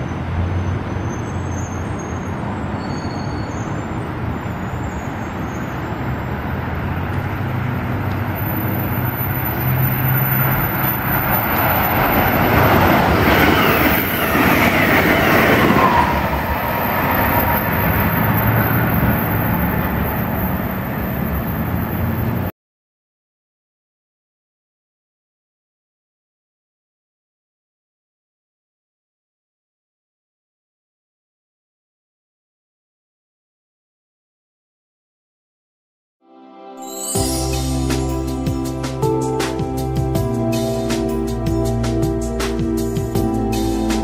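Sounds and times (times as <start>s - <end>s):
train wheels rumbling on rails: 8.0s - 22.5s.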